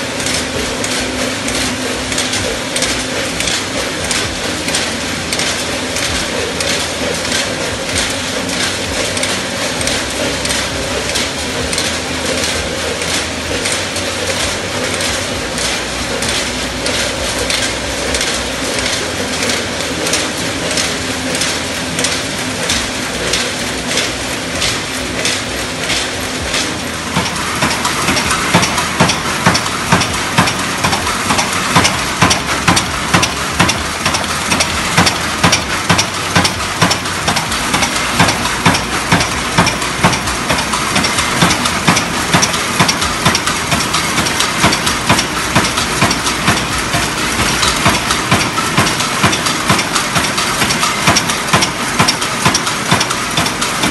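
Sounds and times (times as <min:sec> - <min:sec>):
machines clattering: 0:00.0 - 0:53.9.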